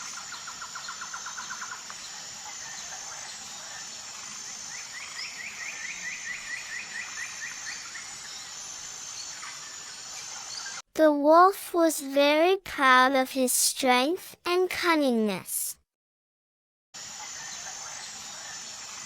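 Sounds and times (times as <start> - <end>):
insect drone: 0.0 - 10.8, 17.0 - 19.0.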